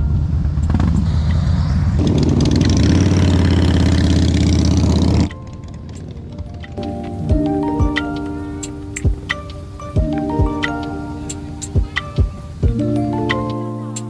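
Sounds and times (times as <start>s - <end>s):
motorcycle engine running: 0.0s - 7.6s.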